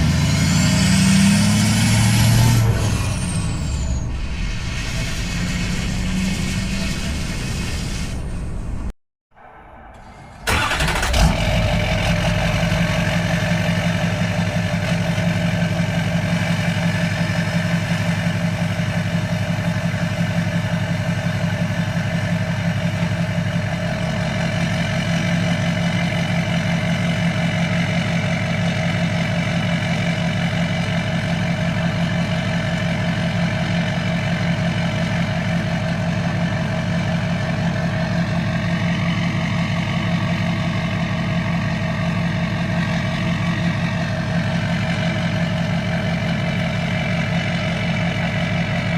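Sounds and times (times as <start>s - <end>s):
diesel engine idling: 10.0s - 48.9s.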